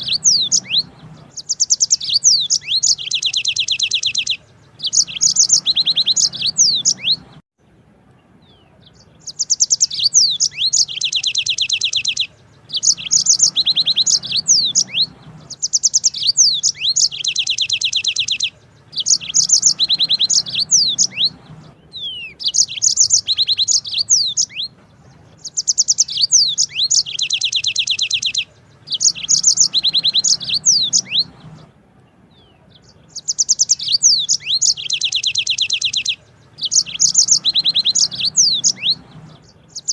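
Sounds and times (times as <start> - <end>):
canary singing trills: 0.0 - 7.4, 8.1 - 39.9.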